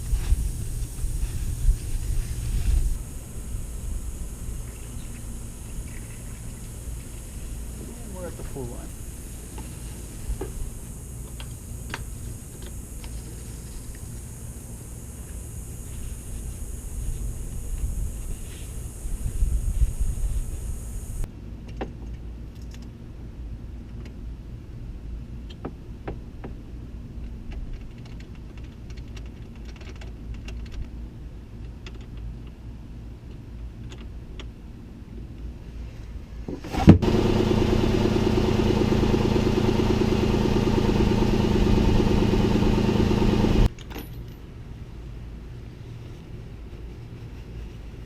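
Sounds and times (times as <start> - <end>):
low rumble: 0.0 - 13.0
car engine running loud: 36.9 - 43.7.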